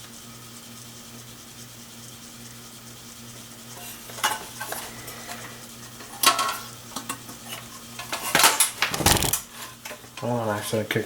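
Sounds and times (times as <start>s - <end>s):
metal clicks and rattles: 8.8s - 9.4s.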